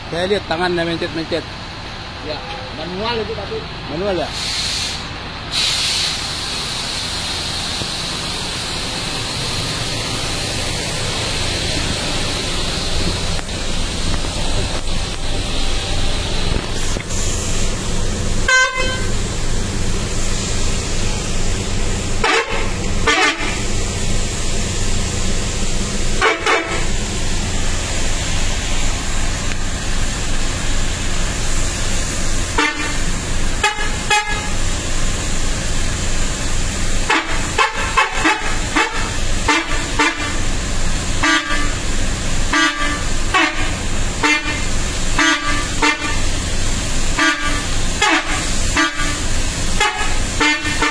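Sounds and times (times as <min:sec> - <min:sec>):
multi-tone bus horn toots: 0:18.4 - 0:19.4, 0:22.2 - 0:23.8, 0:26.1 - 0:27.0, 0:32.5 - 0:34.8, 0:37.0 - 0:40.6, 0:41.2 - 0:46.4, 0:47.1 - 0:50.9.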